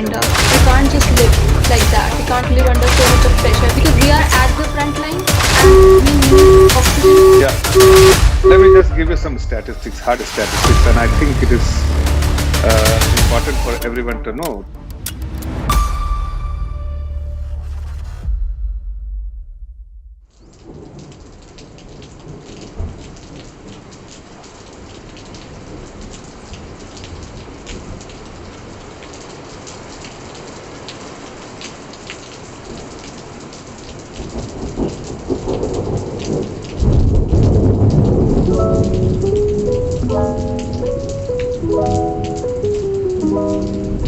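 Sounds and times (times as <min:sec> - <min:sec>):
thunder rumbling: 0:00.0 - 0:13.7, 0:34.2 - 0:44.0
steady rain falling: 0:00.0 - 0:15.6, 0:20.3 - 0:44.0
soft musical notes: 0:00.8 - 0:09.4, 0:38.5 - 0:44.0.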